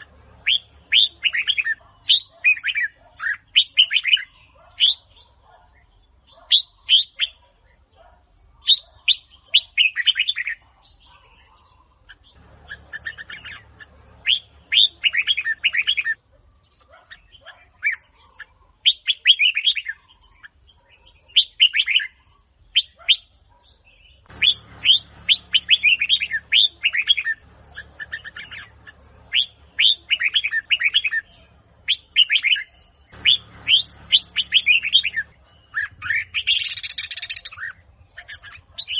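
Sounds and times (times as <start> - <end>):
bird chirping song: 0.0 - 38.9
low background hum: 12.3 - 17.1, 24.2 - 38.9.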